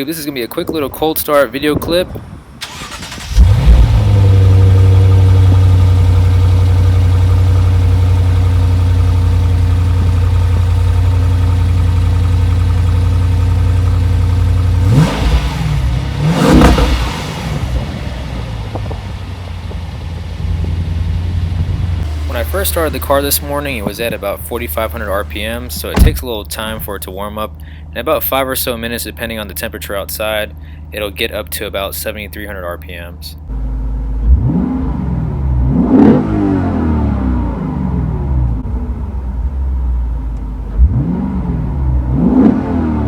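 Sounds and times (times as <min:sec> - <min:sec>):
car engine idling: 0:02.4 - 0:34.5
car engine revving: 0:02.6 - 0:27.0, 0:33.6 - 0:39.7, 0:40.4 - 0:43.0.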